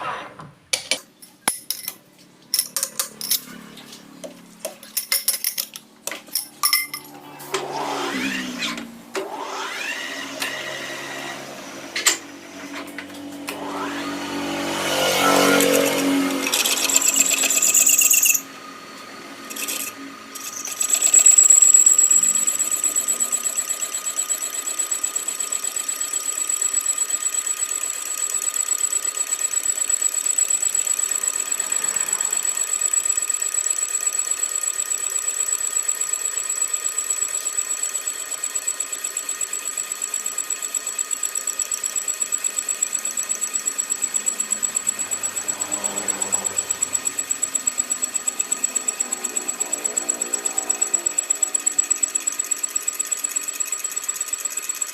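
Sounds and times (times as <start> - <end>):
machine tool clattering: 0.8 - 3.6, 4.8 - 7.2
machine tool whine pulsing: 6.3 - 54.9.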